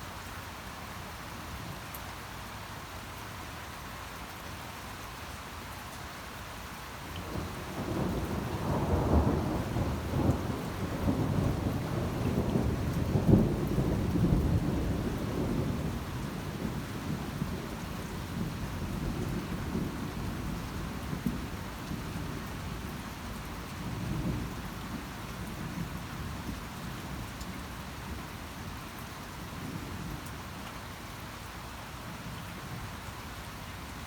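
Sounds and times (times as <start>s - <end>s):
steady rain: 0.0s - 34.0s
thunder rumbling: 7.3s - 22.9s.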